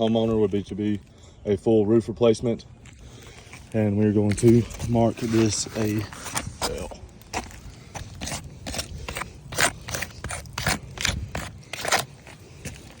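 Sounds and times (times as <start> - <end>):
scraping strokes on shingles: 2.9 - 13.0.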